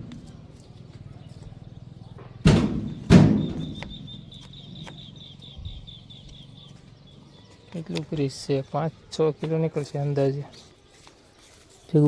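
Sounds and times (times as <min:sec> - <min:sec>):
loud thumps: 0:02.2 - 0:04.3
high-pitched chirping: 0:02.9 - 0:07.7.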